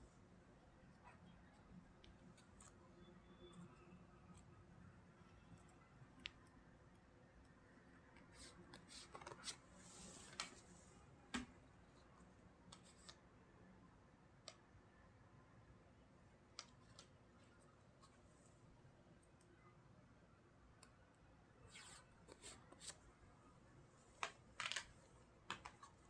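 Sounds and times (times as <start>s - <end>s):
cards rustling: 8.7s - 9.6s, 24.2s - 26.0s
cards clicking and tapping: 24.2s - 26.0s.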